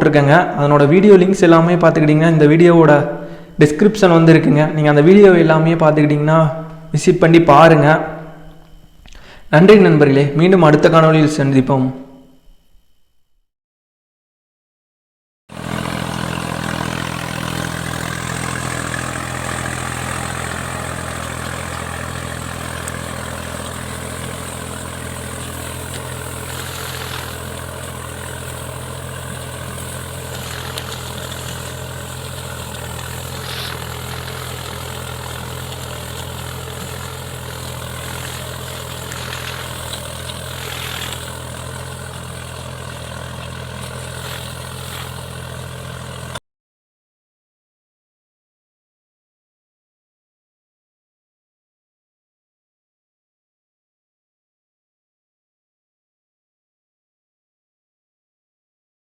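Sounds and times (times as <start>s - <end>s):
tractor diesel engine running: 15.5s - 46.4s.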